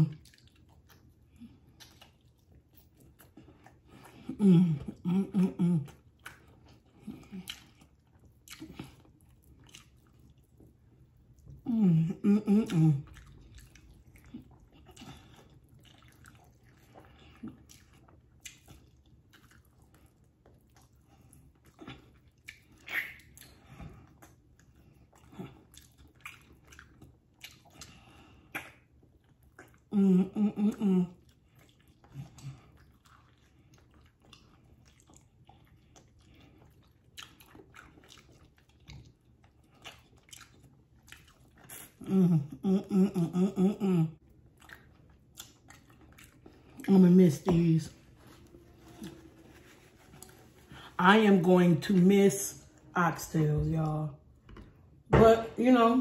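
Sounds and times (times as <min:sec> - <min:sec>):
chewing and lip smacking: 0:00.0 - 0:11.7, 0:12.6 - 0:30.0, 0:30.7 - 0:42.6, 0:44.2 - 0:47.0
person humming: 0:04.3 - 0:05.9, 0:42.0 - 0:44.2.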